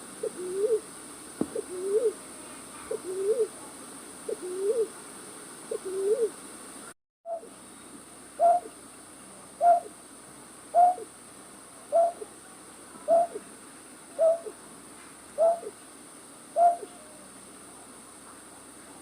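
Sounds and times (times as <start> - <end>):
night bird hooting: 0.2 - 0.9, 1.5 - 2.2, 2.9 - 3.5, 4.3 - 4.9, 5.7 - 6.4, 7.3 - 7.6, 8.4 - 8.8, 9.6 - 10.0, 10.7 - 11.1, 11.9 - 12.3, 13.1 - 13.4, 14.2 - 14.6, 15.4 - 15.8, 16.5 - 17.3.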